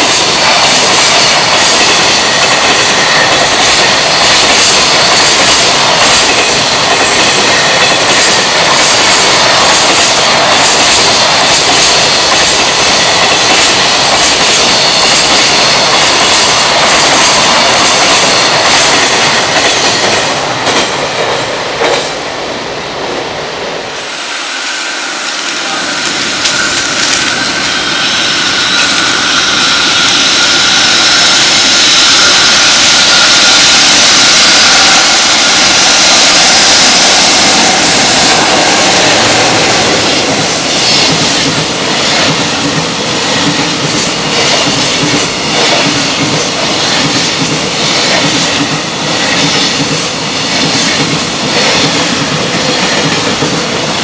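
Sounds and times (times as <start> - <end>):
electric locomotive whine: 0.0 - 54.0
freight train rumbling past: 0.0 - 54.0.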